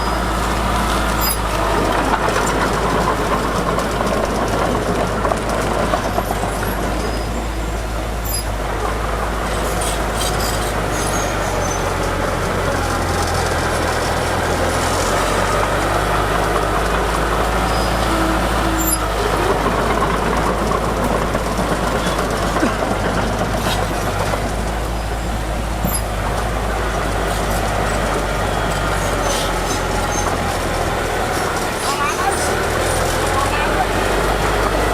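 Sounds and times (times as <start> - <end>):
heavy diesel machinery running: 0.0 - 34.9.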